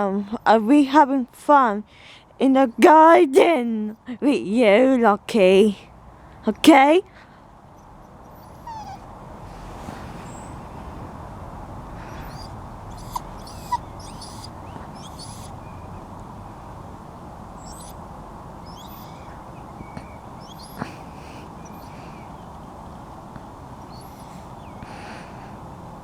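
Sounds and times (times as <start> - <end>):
outdoor background hiss: 0.0 - 26.0
small birds chirping: 7.6 - 9.2, 9.9 - 10.7, 11.9 - 25.6
faint squeaks: 7.8 - 9.1, 12.0 - 16.1, 17.6 - 18.0, 18.6 - 22.4, 23.8 - 24.8.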